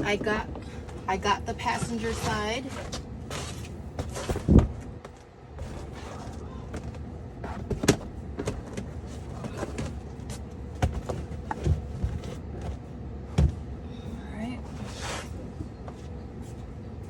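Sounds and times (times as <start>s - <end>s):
mat knocking and rustling: 0.0s - 13.7s
floor mat thump: 5.6s - 10.0s, 10.8s - 12.7s, 13.3s - 13.6s.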